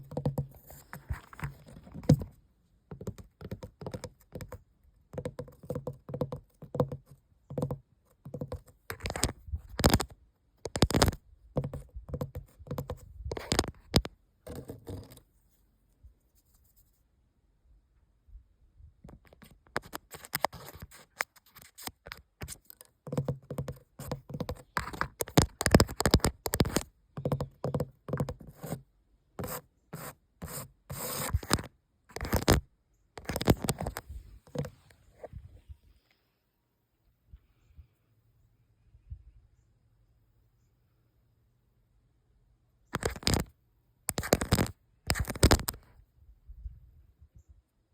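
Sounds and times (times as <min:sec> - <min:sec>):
scratching on a hard surface: 0:00.0 - 0:04.6, 0:10.7 - 0:15.6, 0:19.1 - 0:28.8, 0:29.4 - 0:35.6, 0:44.1 - 0:45.8.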